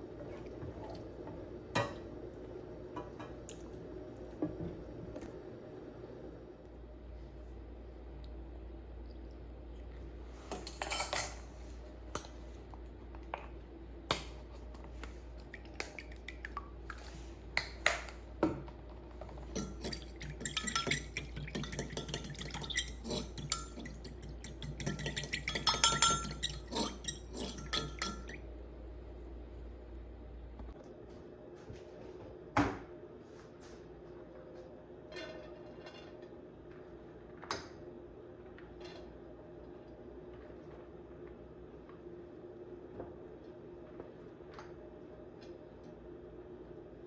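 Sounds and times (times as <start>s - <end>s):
metal utensils clinking: 10.6s - 11.5s, 19.5s - 28.4s.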